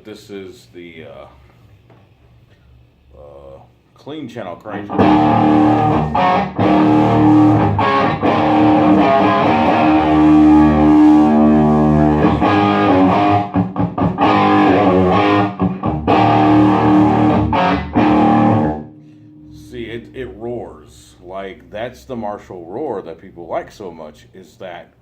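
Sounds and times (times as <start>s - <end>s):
overdriven electric guitar chords: 4.7s - 21.4s.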